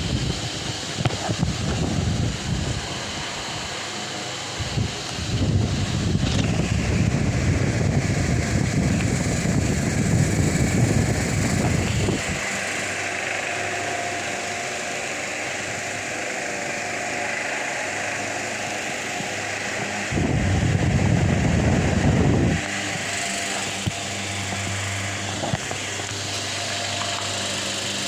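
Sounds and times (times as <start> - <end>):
wind buffeting microphone: 0.0 - 3.8, 4.5 - 12.5, 19.2 - 26.2
fan blades whooshing: 0.0 - 28.0
fan motor hum: 0.0 - 28.0.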